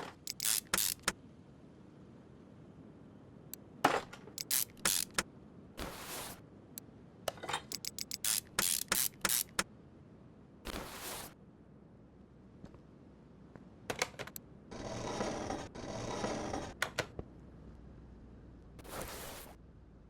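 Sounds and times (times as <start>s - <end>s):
tools clicking and knocking: 0.0s - 1.2s, 3.9s - 5.2s, 7.3s - 9.6s.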